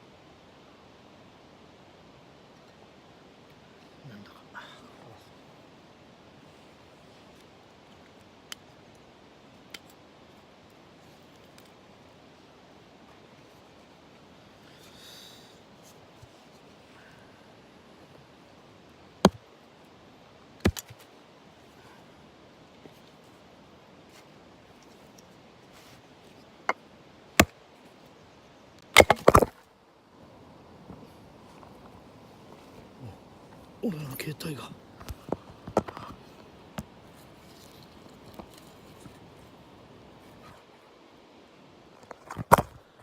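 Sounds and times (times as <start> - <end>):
faint river rushing: 0.0 - 43.0
faint steady hiss: 0.0 - 43.0.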